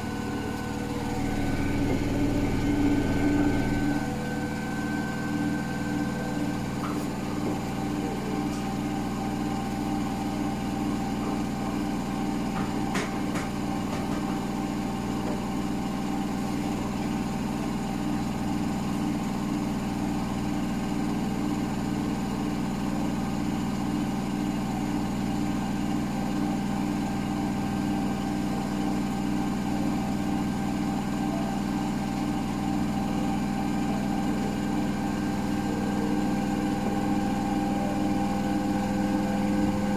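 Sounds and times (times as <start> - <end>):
washing machine motor hum: 0.0 - 39.9
knock: 12.6 - 14.4.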